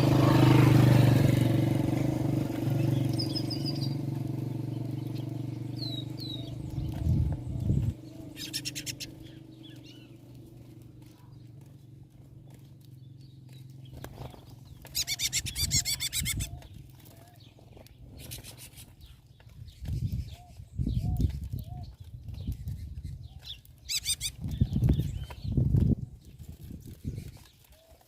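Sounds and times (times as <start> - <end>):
low fluttering of wings: 4.9 - 28.0
soft short bird calls: 5.8 - 10.1
rattling bird chirps: 8.2 - 10.2, 14.5 - 16.6, 23.8 - 25.4.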